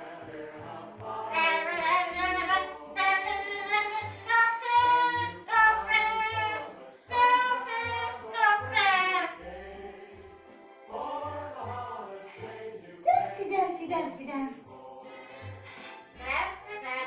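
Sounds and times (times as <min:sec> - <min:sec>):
parrot singing: 0:01.1 - 0:09.6.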